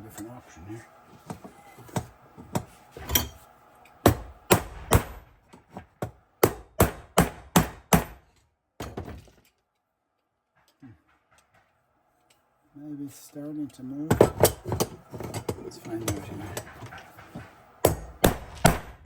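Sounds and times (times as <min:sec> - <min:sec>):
hammer striking metal: 0:01.2 - 0:09.0, 0:14.1 - 0:19.0
metal clatter: 0:14.1 - 0:18.8.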